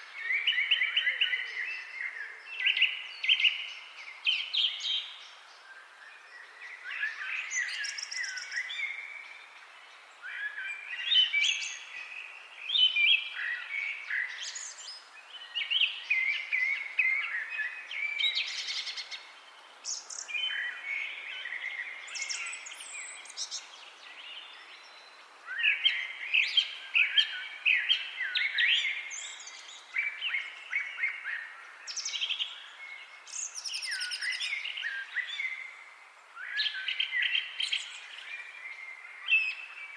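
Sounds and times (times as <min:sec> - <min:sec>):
songbirds singing and chirping: 0:00.0 - 0:39.9.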